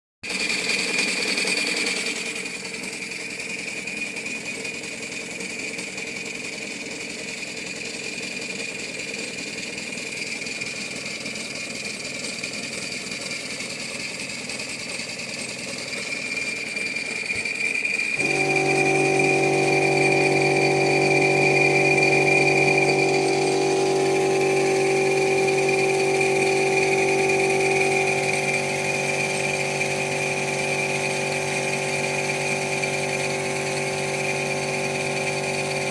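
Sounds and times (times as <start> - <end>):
mechanical whirr with high whine: 15.8 - 35.9
low steady hum: 18.2 - 32.6.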